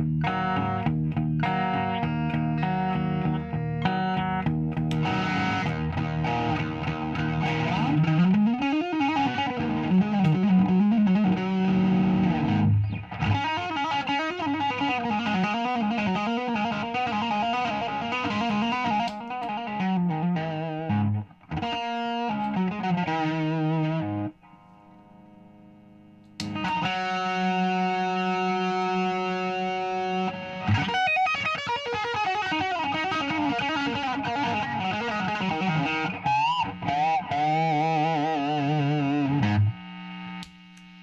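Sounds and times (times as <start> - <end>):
electric guitar with drive: 0.0 - 41.0.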